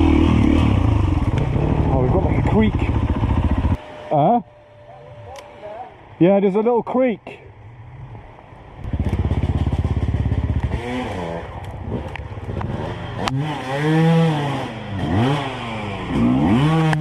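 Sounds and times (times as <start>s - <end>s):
dirt bike engine revving: 0.0s - 4.4s, 8.8s - 17.0s.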